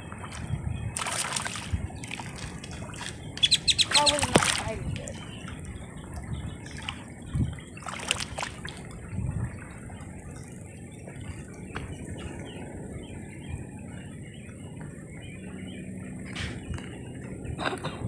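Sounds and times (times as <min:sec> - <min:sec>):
faint water trickle: 0:00.0 - 0:16.1.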